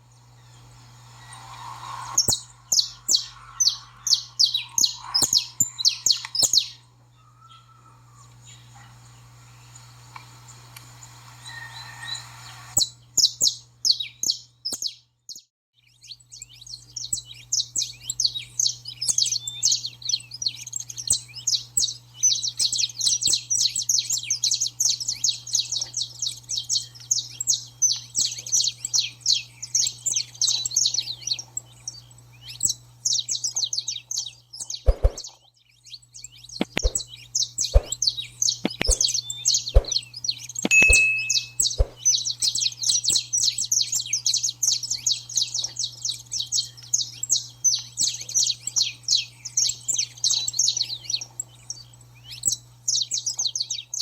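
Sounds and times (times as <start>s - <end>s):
steady low hum: 0.0s - 7.2s, 36.6s - 37.1s, 37.7s - 40.0s
finch twittering song: 0.0s - 8.7s, 11.0s - 54.0s
sharp knocks: 36.6s - 37.0s.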